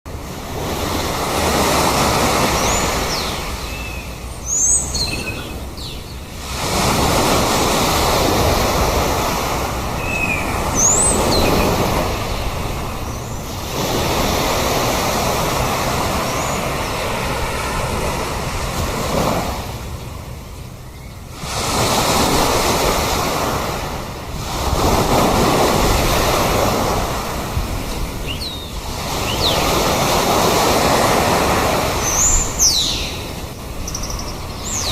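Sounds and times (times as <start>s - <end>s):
sea surf breaking: 0.1s - 20.6s, 21.2s - 34.9s
sea birds calling: 0.2s - 34.9s.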